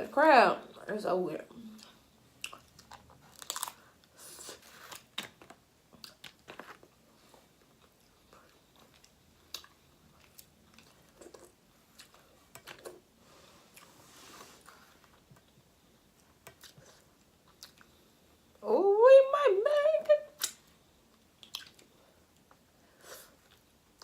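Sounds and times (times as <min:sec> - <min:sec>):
crunches and clicks of eating: 0:01.7 - 0:04.0, 0:04.6 - 0:06.9, 0:07.5 - 0:13.1, 0:15.0 - 0:18.0, 0:20.4 - 0:22.6
person chewing and biting: 0:02.4 - 0:05.3, 0:21.4 - 0:21.9.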